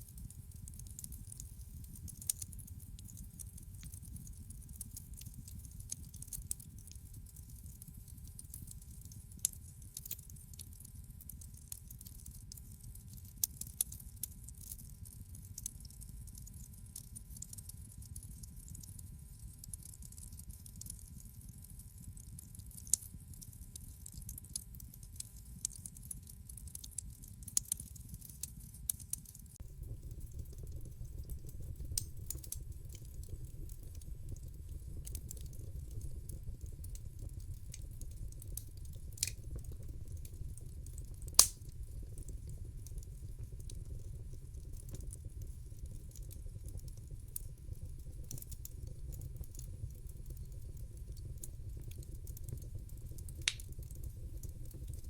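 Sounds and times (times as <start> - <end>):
sharp pops and snaps: 0.0 - 10.6, 25.6 - 27.8, 28.9 - 55.0
wood fire crackling: 0.0 - 14.8, 24.4 - 55.0.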